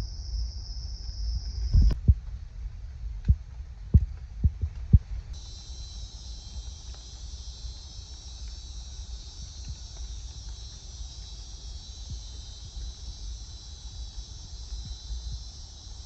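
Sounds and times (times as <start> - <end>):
insect chirring: 0.0 - 2.0, 5.3 - 16.0
low rumble: 1.3 - 5.6
dull low thumps: 1.6 - 5.4.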